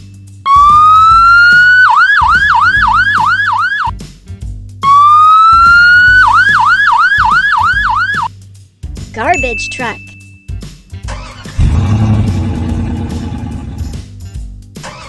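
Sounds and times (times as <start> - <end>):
light background music: 0.0 - 15.0
fire truck siren wailing and yelping: 0.5 - 3.9, 4.8 - 8.3.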